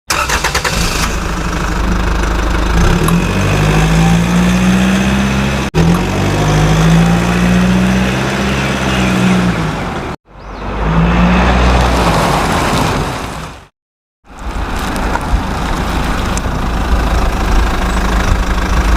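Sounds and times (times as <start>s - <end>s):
engine humming: 0.1s - 13.0s, 14.3s - 18.9s.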